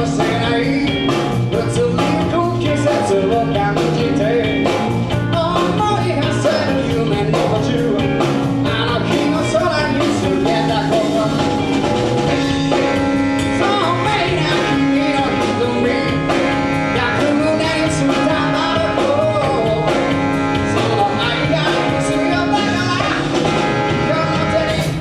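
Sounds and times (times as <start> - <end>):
live band playing: 0.0 - 25.0.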